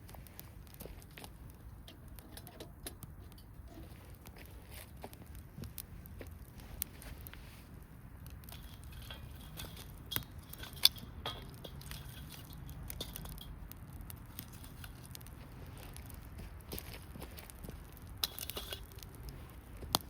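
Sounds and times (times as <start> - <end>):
campfire crackling: 0.0 - 20.0.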